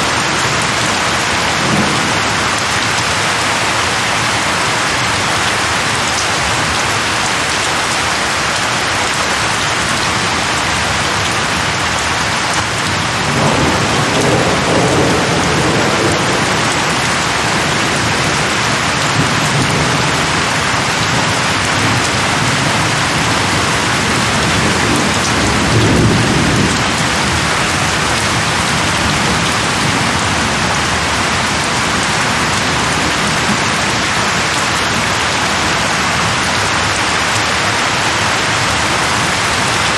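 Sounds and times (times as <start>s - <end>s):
heavy rain falling: 0.0s - 39.9s
low thunder rumbling: 12.6s - 33.9s.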